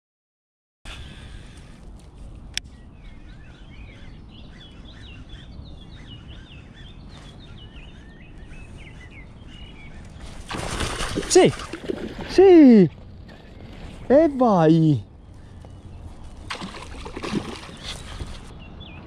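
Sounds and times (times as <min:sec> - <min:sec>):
songbird chirping: 0:00.9 - 0:19.0
fish splashing at surface: 0:10.4 - 0:12.3, 0:16.5 - 0:18.4.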